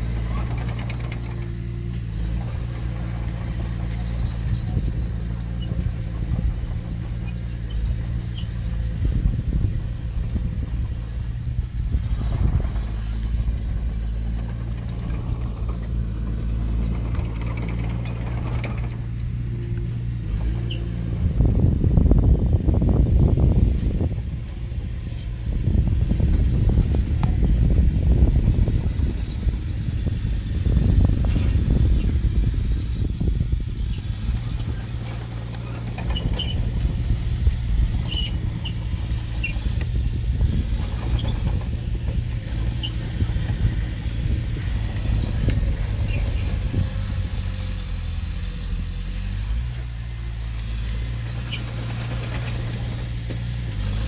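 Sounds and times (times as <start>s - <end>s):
faint short squeaks: 0.0s - 8.8s, 12.2s - 21.8s, 34.6s - 37.0s, 37.8s - 41.8s, 42.4s - 43.9s, 45.1s - 47.1s
heavy diesel engine running: 0.0s - 54.0s.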